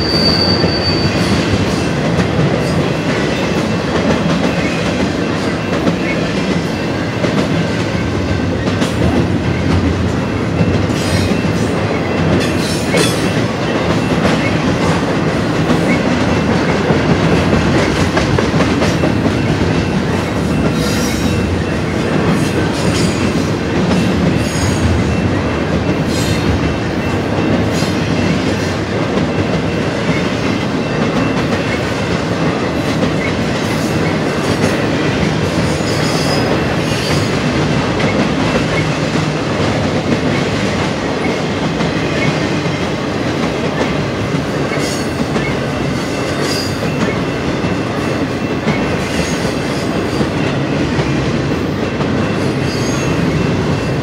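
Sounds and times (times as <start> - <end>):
wheel squeals: 0.0 - 1.5
freight train wheels rumbling: 0.0 - 54.0.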